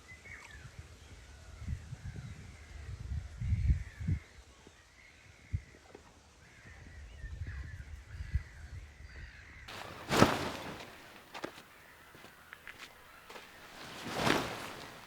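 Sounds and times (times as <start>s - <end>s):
bird calls: 9.7s - 15.0s.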